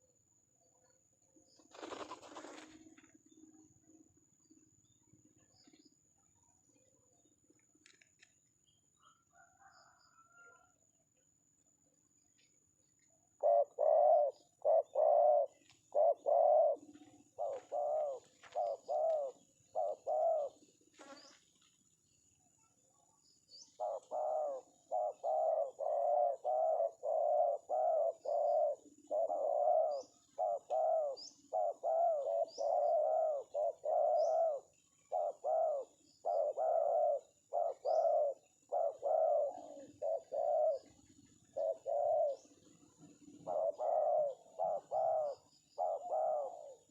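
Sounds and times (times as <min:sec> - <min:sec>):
dove cooing: 0:13.4 - 0:21.3, 0:23.7 - 0:46.9.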